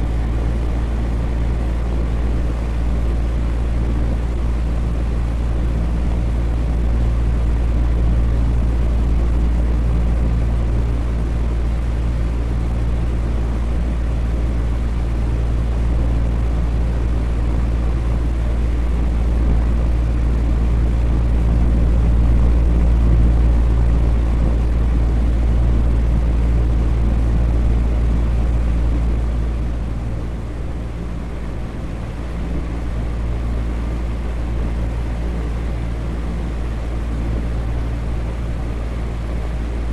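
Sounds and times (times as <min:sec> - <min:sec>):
electric fan running: 0:00.0 - 0:39.9.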